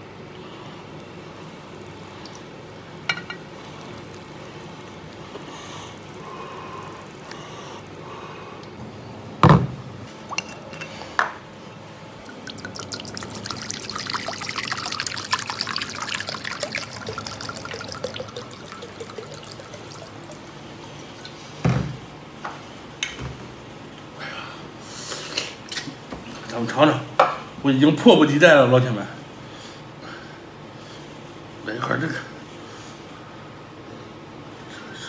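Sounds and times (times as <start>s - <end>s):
liquid pouring and splashing: 12.2s - 21.6s.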